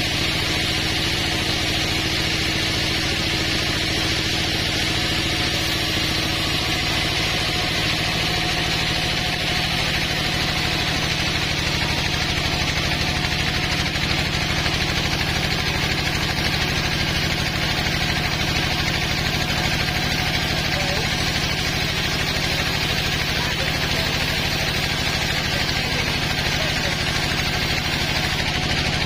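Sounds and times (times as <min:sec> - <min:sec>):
sawmill engine running: 0:00.0 - 0:29.0.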